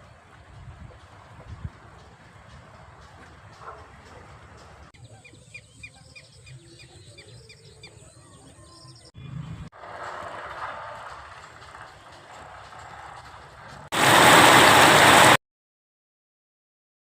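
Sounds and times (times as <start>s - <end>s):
bird chirping: 0.6s - 9.7s.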